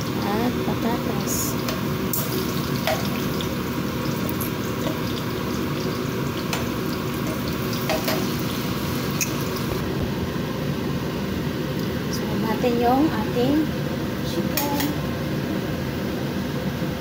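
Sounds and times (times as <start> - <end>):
vegetables sizzling in oil: 0.0 - 10.0
metal tongs clicking on pan: 6.5 - 8.3.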